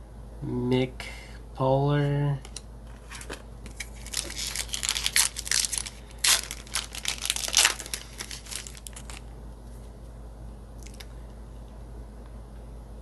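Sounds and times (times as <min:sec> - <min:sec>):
foil wrapper tearing and crinkling: 0:03.7 - 0:09.3.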